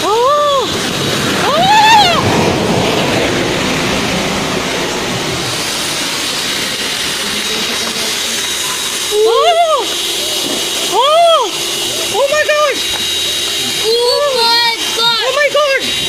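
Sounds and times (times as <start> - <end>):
short rising and falling cry: 0.0 - 9.9
heavy rain and runoff water: 0.0 - 10.1.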